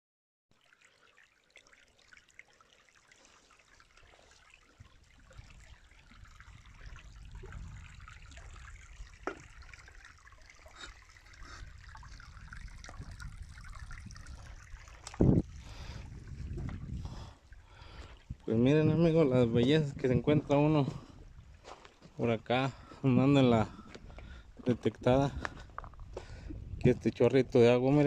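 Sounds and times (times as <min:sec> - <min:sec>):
water trickling: 0:00.5 - 0:27.3
low rumble: 0:15.2 - 0:17.5.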